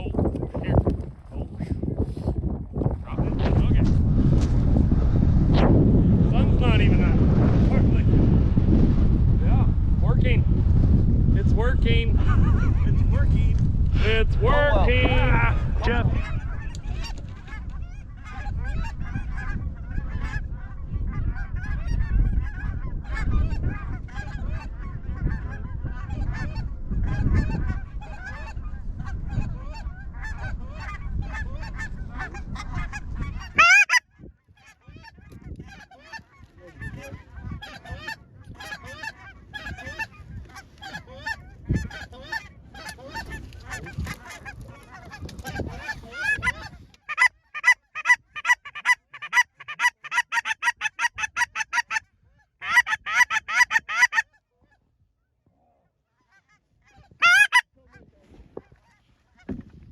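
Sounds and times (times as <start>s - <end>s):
wind rumbling on microphone: 0.0s - 47.1s, 50.7s - 55.7s, 56.6s - 59.9s
geese honking: 14.4s - 52.0s, 52.6s - 54.4s, 56.2s - 58.0s.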